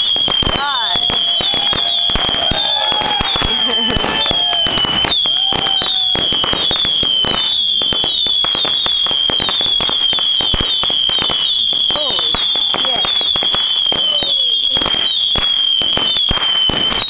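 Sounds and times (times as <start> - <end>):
firework whistle: 0.0 - 17.0
fireworks crackling: 0.0 - 17.0.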